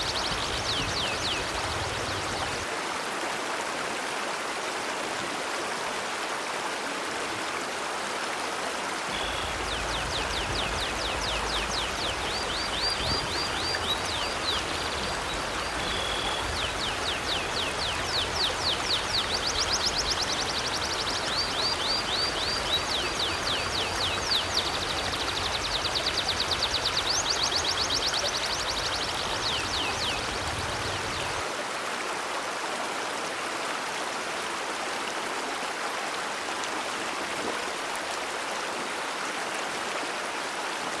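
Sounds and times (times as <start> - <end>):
river flowing: 0.0 - 41.0
bird chirping: 9.1 - 31.4.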